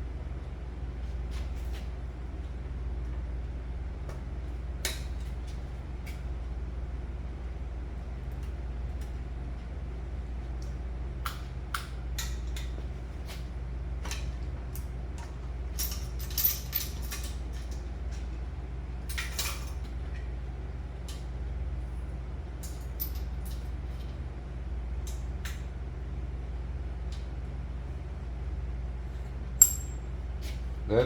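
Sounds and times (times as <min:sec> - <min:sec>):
steady low hum: 0:00.0 - 0:31.0
metal tool clicks and clinks: 0:29.6 - 0:30.0.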